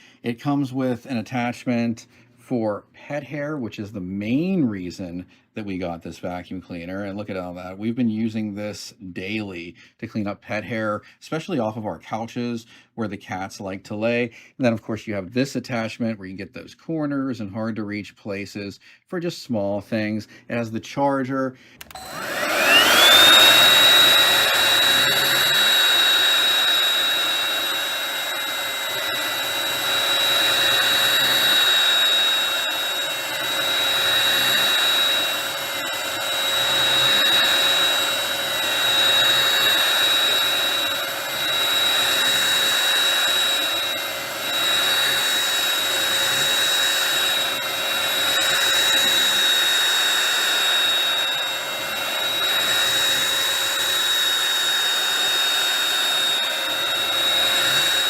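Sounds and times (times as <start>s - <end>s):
hand vacuum motor whine: 21.8s - 58.0s.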